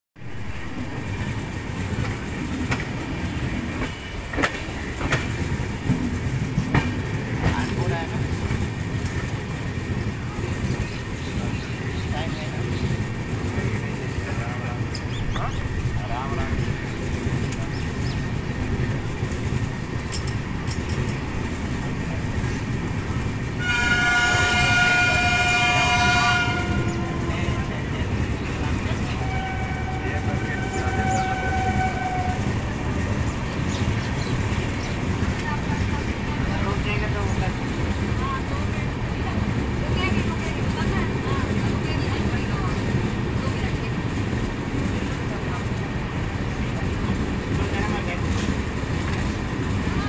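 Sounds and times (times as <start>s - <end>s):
train rumbling: 0.2s - 50.0s
train wheels clicking on rails: 0.3s - 50.0s
locomotive horn blast: 23.6s - 27.9s, 28.9s - 32.6s.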